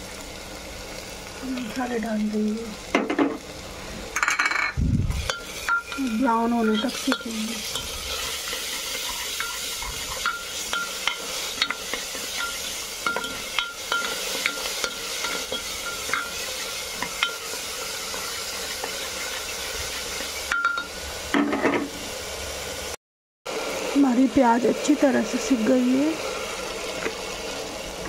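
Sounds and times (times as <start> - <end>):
onion sizzling in hot oil: 0.0 - 28.0
spatula scraping a pot: 5.2 - 19.4.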